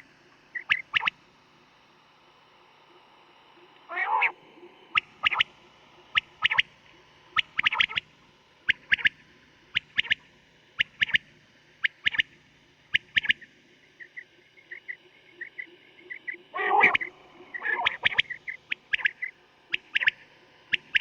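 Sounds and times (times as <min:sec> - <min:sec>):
recorded quail calls: 0:00.5 - 0:01.2, 0:03.9 - 0:06.7, 0:07.3 - 0:08.1, 0:08.7 - 0:11.2, 0:11.8 - 0:12.3, 0:12.9 - 0:21.0.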